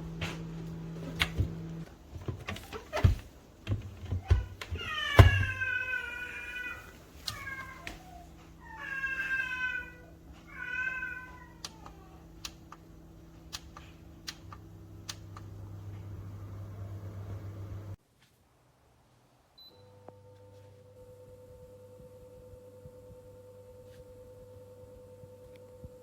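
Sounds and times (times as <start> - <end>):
steady low hum: 11.6 - 18.0.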